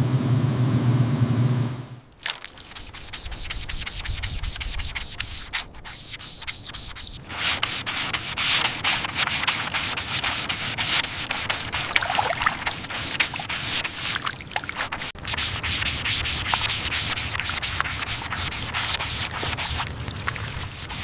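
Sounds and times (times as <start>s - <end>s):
sanding strokes on a surface: 2.6s - 19.9s, 20.5s - 21.0s.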